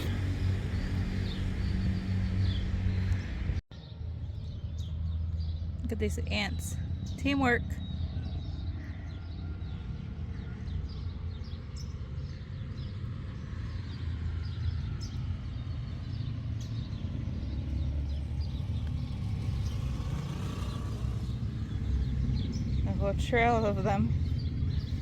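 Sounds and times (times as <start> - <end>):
steady low rumble: 0.0 - 7.5
small birds chirping: 0.0 - 25.0.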